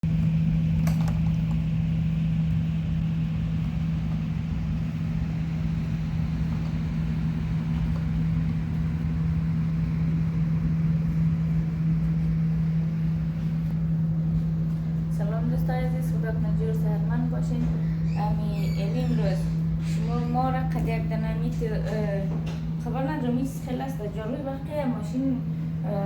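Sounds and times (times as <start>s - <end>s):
machine motor humming: 0.0s - 26.0s.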